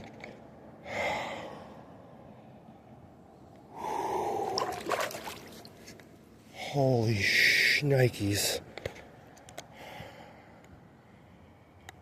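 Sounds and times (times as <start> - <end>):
man breathing hard: 0.8 - 2.2, 3.7 - 4.8, 9.7 - 11.6.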